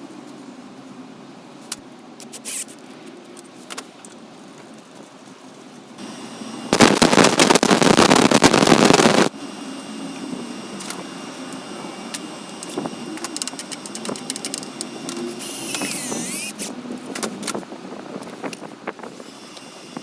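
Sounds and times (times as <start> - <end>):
belt grinder grinding: 12.5 - 16.7.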